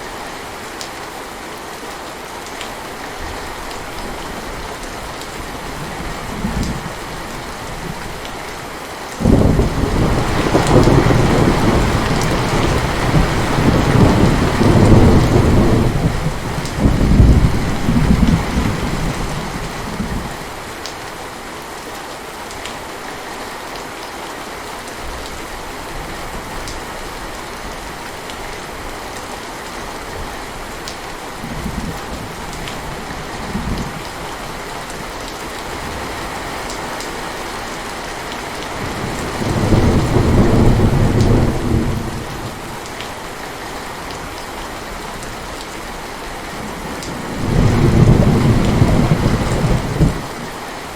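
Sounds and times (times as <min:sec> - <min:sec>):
heavy rain: 0:00.0 - 0:50.9
rolling thunder: 0:09.2 - 0:20.3, 0:38.8 - 0:42.6, 0:46.6 - 0:50.4.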